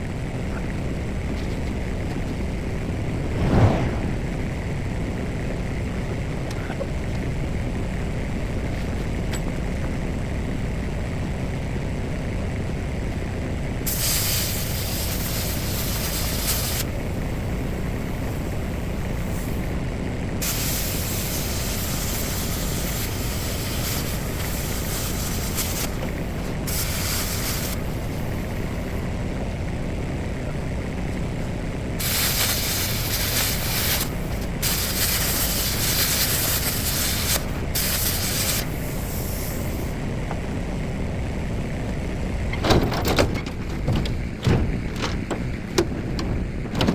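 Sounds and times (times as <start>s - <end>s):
machine running low: 1.9s - 6.1s
compressed-air tool hissing: 13.9s - 19.7s, 20.4s - 28.6s, 32.0s - 40.0s.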